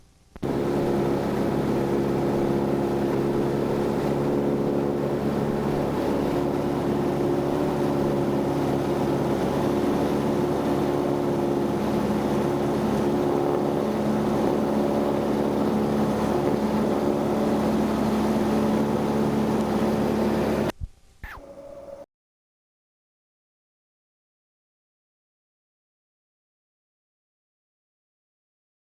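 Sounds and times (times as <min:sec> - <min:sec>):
propeller airplane engine droning: 0:00.0 - 0:22.0.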